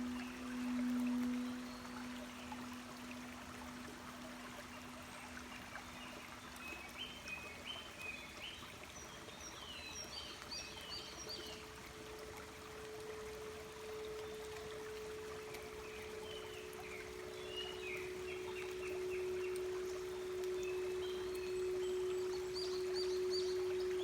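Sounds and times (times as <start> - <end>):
singing bowls ringing: 0.0 - 7.3, 11.3 - 24.0
babbling stream: 0.0 - 24.0
birds chirping: 13.9 - 24.0.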